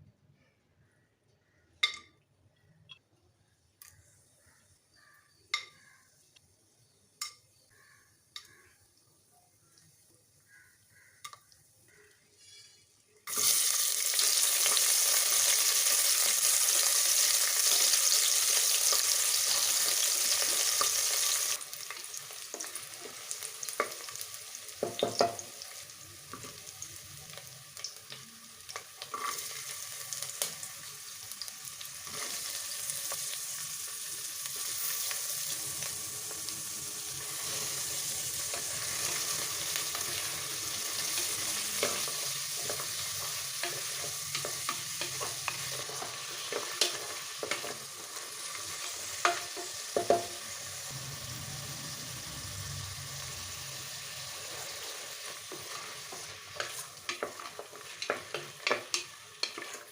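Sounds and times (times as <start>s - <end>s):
food sizzling in hot oil: 12.4s - 59.9s.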